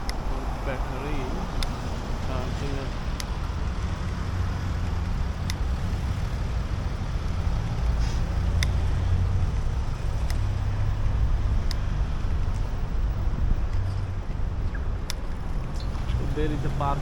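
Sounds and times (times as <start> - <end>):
cars passing: 0.0 - 17.0
low traffic rumble: 0.0 - 17.0
sharp clicks: 1.5 - 2.3, 3.0 - 6.3, 8.2 - 9.0, 10.1 - 10.8, 11.4 - 12.7, 13.6 - 16.2.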